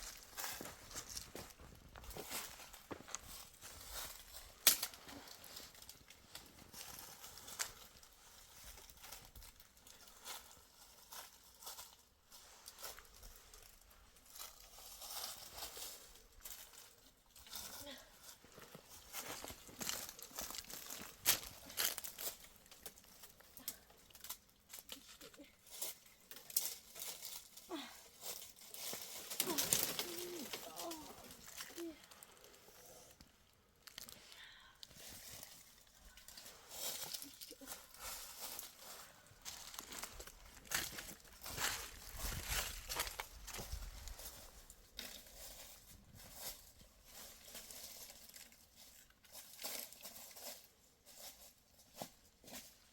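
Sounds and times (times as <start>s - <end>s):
scuffing and crunching: 0.0s - 8.1s, 18.5s - 22.8s, 35.1s - 48.0s
faint crackles and rustles: 0.0s - 52.9s.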